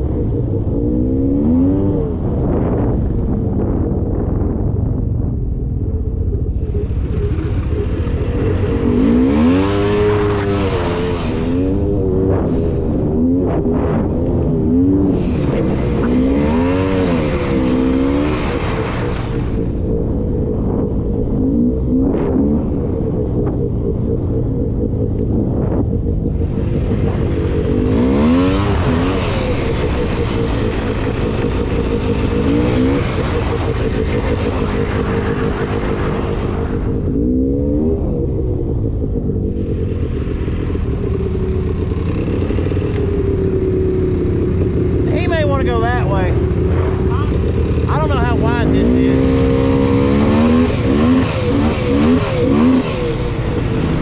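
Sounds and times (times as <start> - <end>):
atv engine revving: 0.0 - 4.1, 6.1 - 54.0.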